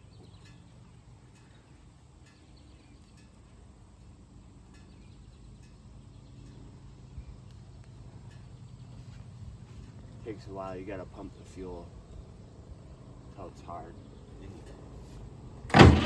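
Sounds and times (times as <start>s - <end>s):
faint ticks and chirps: 0.0s - 10.4s.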